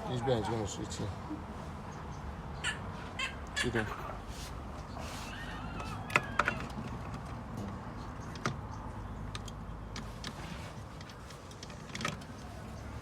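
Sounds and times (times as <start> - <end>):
metallic clicks and knocks of parts: 6.1 - 12.5.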